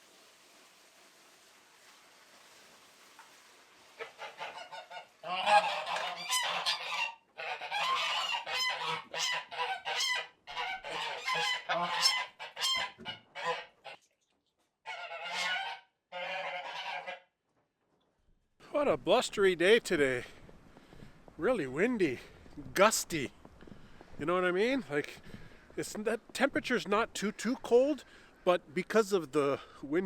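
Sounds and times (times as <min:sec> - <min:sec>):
faint hiss: 0:00.0 - 0:04.2
geese honking: 0:04.0 - 0:14.0, 0:14.8 - 0:17.3.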